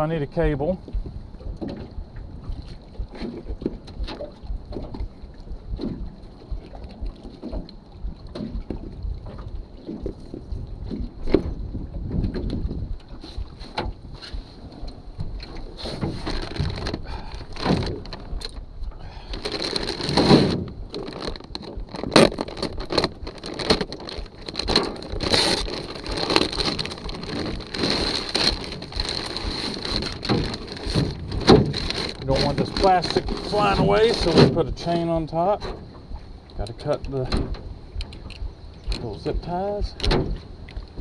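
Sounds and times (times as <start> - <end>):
wind rumbling on microphone: 0.0 - 41.0
gear knocking and clattering: 19.3 - 41.0.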